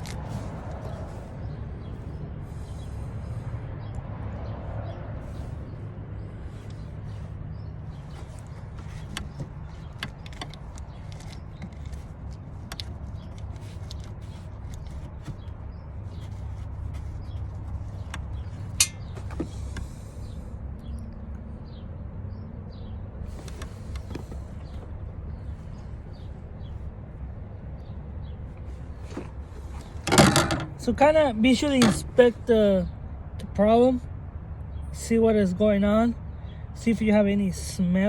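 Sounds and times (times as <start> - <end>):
hand tools clicking and knocking: 29.9 - 30.8, 31.7 - 32.1.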